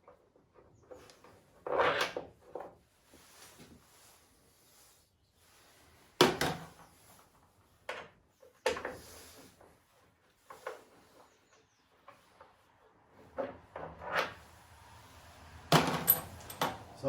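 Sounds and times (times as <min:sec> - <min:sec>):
hard parts knocking and clattering: 0:15.7 - 0:16.9.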